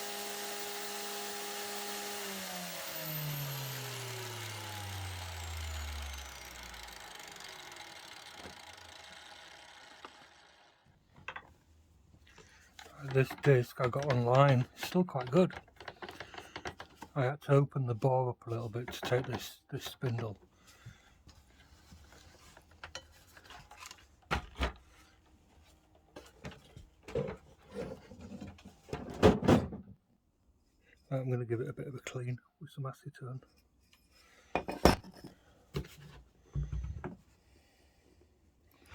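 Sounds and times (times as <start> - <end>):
angle grinder spinning down: 0.0 - 10.9.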